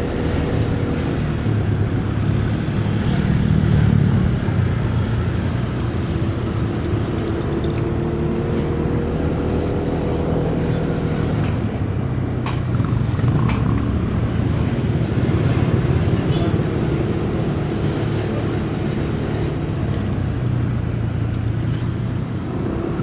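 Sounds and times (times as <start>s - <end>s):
motorcycle engine running: 0.0s - 11.1s, 18.4s - 22.2s
road and traffic noise: 0.0s - 23.0s
sharp clicks: 5.2s - 8.3s.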